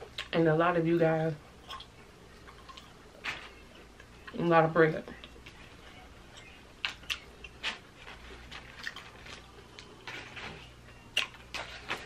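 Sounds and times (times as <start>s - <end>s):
person chewing crunchy food: 1.6s - 4.4s, 5.2s - 12.0s.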